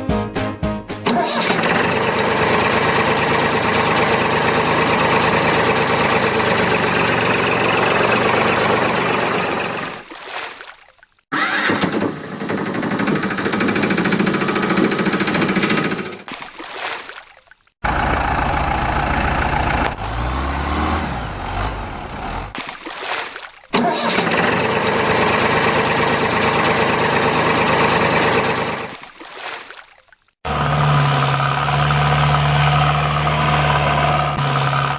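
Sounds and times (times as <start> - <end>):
engine running: 1.0 - 10.0, 11.3 - 16.3, 17.8 - 22.6, 23.8 - 29.0, 30.4 - 34.9.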